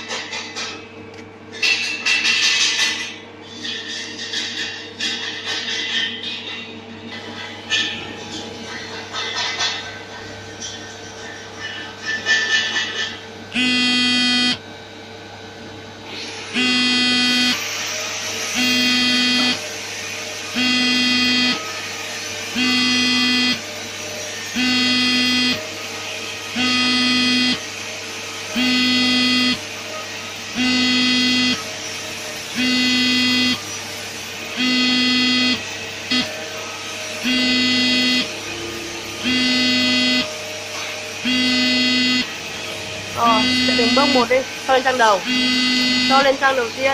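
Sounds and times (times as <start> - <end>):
low machine hum: 13.1 - 46.9
electronic alarm buzzer beeping: 13.5 - 14.6, 16.5 - 19.8, 20.4 - 21.8, 22.4 - 23.7, 24.4 - 25.7, 26.4 - 27.7, 28.5 - 29.7, 30.4 - 33.8, 34.4 - 36.4, 37.1 - 38.5, 39.1 - 40.6, 41.2 - 42.4, 43.2 - 46.7.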